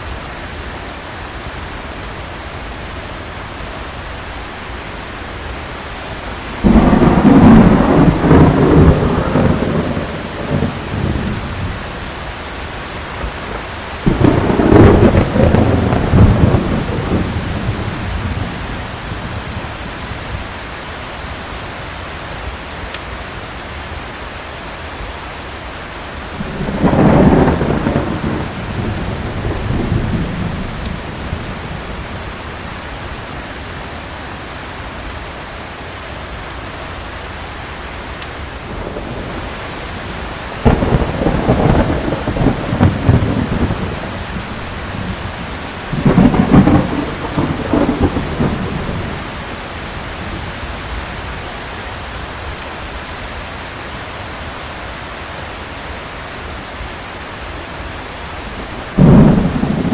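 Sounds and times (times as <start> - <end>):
heavy rain: 0.0 - 59.9
thunder rumbling: 2.1 - 21.6, 25.8 - 35.2, 36.7 - 53.4, 58.0 - 59.9.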